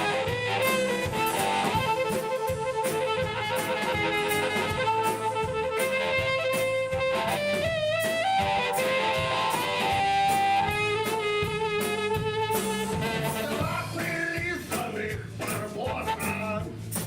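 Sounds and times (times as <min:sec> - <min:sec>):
drum kit: 0:00.0 - 0:17.0
guitar: 0:00.0 - 0:17.0
live band instrumental: 0:00.0 - 0:17.0.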